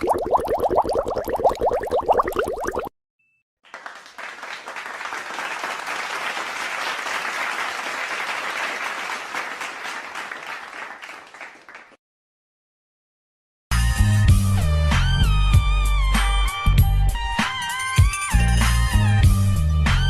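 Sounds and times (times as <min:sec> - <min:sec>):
crowd applause: 0:03.7 - 0:12.0.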